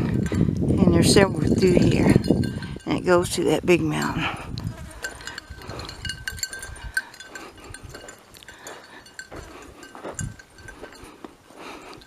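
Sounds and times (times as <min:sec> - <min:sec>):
small bell jingling: 0:01.2 - 0:03.3, 0:04.7 - 0:12.0.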